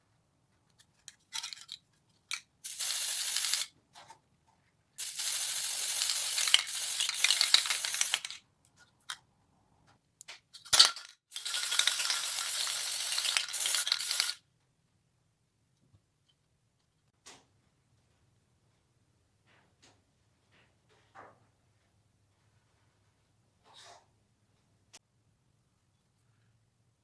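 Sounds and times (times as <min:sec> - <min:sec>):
spray hissing: 0:02.7 - 0:03.7, 0:05.0 - 0:08.3, 0:11.3 - 0:14.4.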